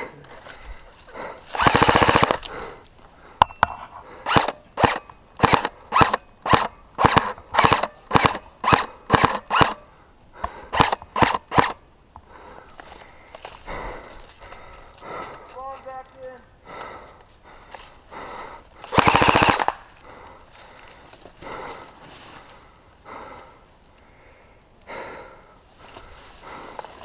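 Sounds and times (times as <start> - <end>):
airsoft gun full-auto burst: 1.6 - 2.4, 4.2 - 9.8, 10.7 - 11.8, 18.9 - 19.8
short evenly spaced clicks: 1.6 - 2.5, 18.8 - 19.8.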